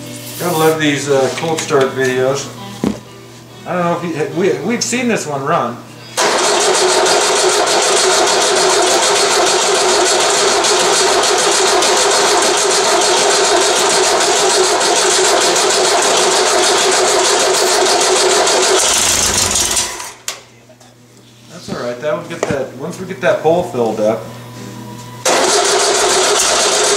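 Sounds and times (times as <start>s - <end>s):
engine cranking on starter: 6.2s - 20.2s, 25.2s - 26.9s.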